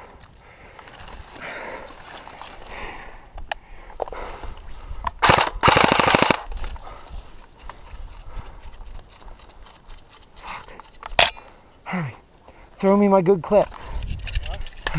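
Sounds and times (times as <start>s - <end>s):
airsoft rifle firing: 5.2s - 6.5s.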